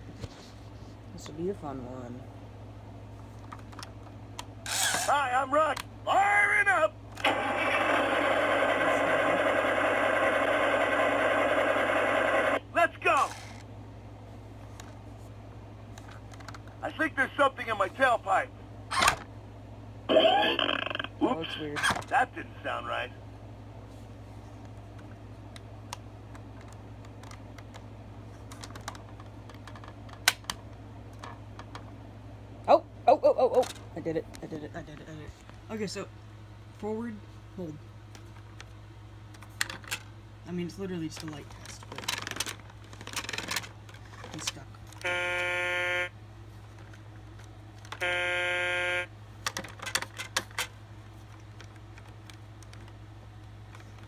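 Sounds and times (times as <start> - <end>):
steady low hum: 0.0 - 54.0
electronic buzz tone: 7.3 - 12.6, 20.1 - 21.4, 45.0 - 46.1, 48.0 - 49.1
plastic toy being handled: 13.2 - 13.6, 41.1 - 45.0, 49.4 - 53.0
sharp plastic clicks: 28.5 - 30.6.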